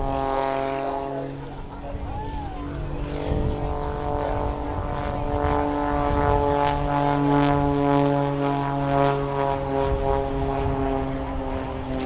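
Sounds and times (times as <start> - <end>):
propeller plane droning overhead: 0.0 - 12.0.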